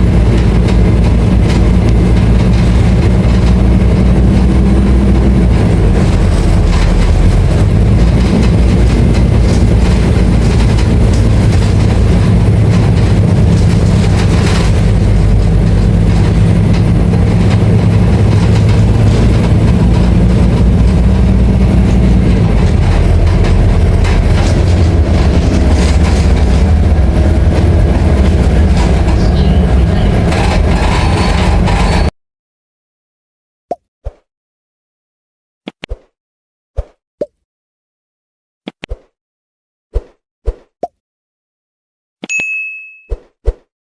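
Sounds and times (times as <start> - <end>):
bus diesel engine running: 0.0 - 32.1
small rattles and knocks: 5.3 - 32.1.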